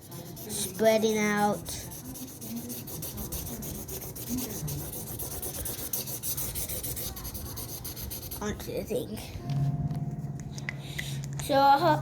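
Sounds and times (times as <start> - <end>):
coloring strokes scratching paper: 0.0 - 9.1.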